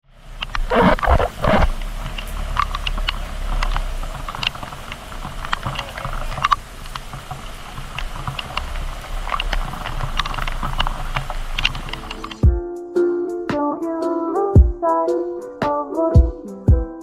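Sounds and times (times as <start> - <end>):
low steady rumble: 0.0 - 12.4
raindrops tapping on plastic housing: 0.3 - 12.4.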